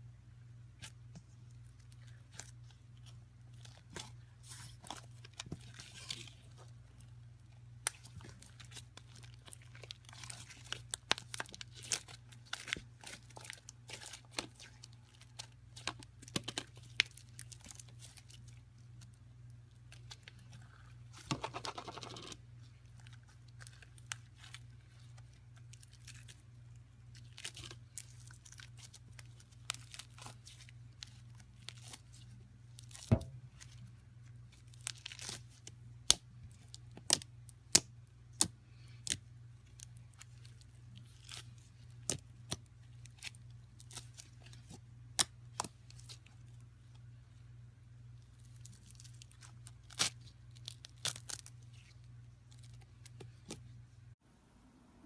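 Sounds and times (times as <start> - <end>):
faint steady hum: 0.0 - 55.0
slime crackling and popping: 7.8 - 19.1, 48.4 - 53.2.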